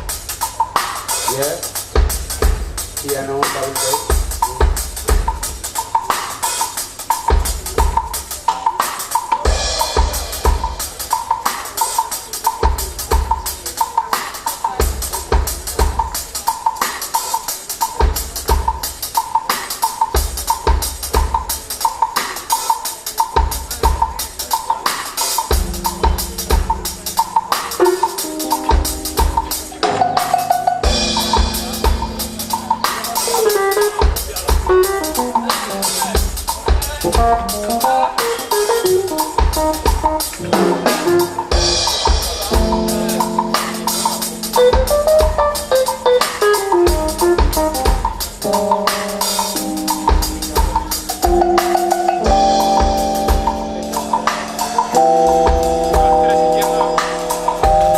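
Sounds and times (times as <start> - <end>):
drum kit groove: 0.0 - 57.9
piano: 22.9 - 57.9.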